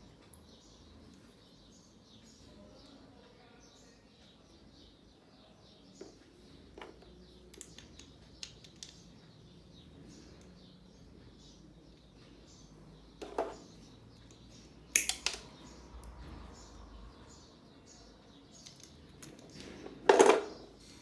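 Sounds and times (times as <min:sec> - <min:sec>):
small birds chirping: 0:00.0 - 0:21.0
clattering handling noises: 0:06.0 - 0:09.1, 0:13.2 - 0:14.4, 0:18.6 - 0:21.0.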